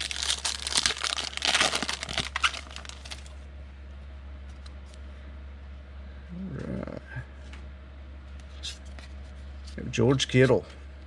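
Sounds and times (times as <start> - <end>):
foil wrapper tearing and crinkling: 0.0 - 3.4
steady low hum: 0.0 - 11.0.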